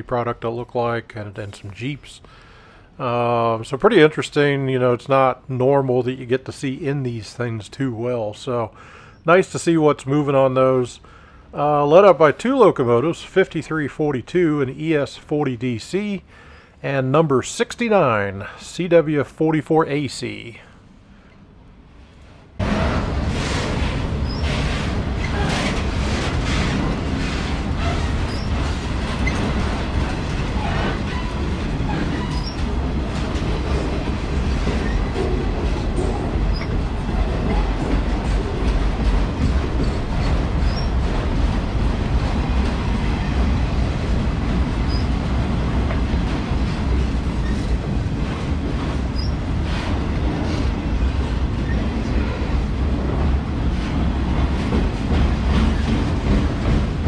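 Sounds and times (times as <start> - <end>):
train wheels rumbling on rail: 21.4 - 57.0
wheel clicks over rail joints: 22.7 - 41.6
faint wheel squeals: 28.3 - 28.6, 32.0 - 32.6, 36.5 - 36.7, 40.6 - 41.0, 49.2 - 49.4.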